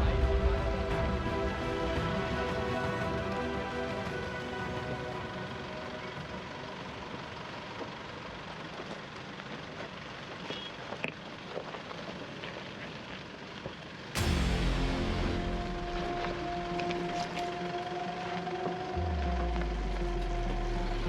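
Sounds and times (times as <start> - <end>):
loud music: 0.0 - 7.0, 14.2 - 17.7.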